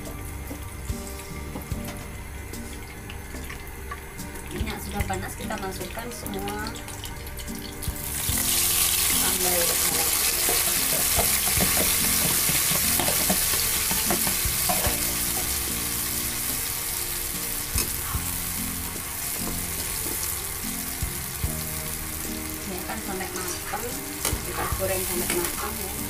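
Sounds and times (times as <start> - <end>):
chili paste sizzling in oil: 0.0 - 26.0
metal spatula knocking pan: 10.4 - 15.1.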